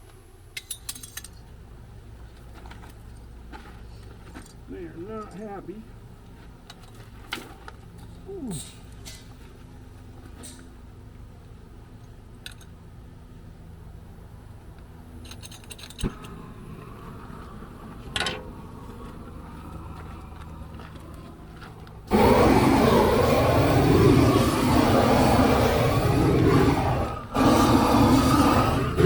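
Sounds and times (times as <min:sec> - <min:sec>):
blow torch roaring: 0:16.0 - 0:21.1, 0:21.9 - 0:29.0.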